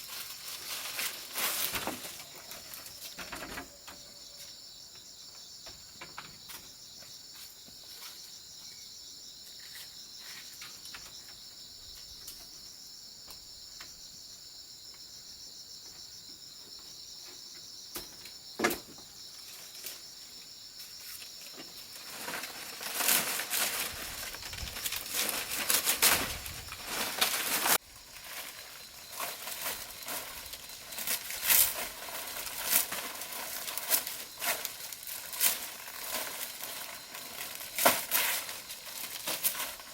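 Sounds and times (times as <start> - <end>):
dry rustling and crunching: 0.0 - 3.8, 20.8 - 39.9
insects droning: 0.0 - 39.9.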